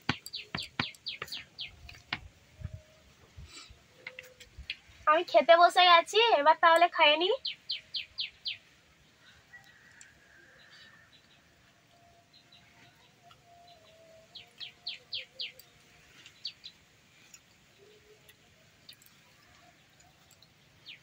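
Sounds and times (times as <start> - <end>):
small bird chirping: 0.0 - 2.8, 6.8 - 10.0, 12.3 - 21.0.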